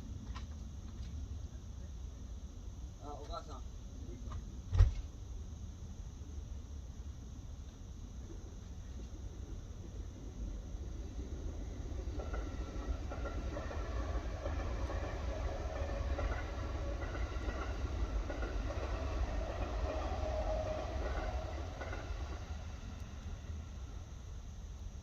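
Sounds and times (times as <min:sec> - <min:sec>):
faint steady tones: 0:00.0 - 0:25.0
blizzard wind rumble: 0:08.2 - 0:25.0.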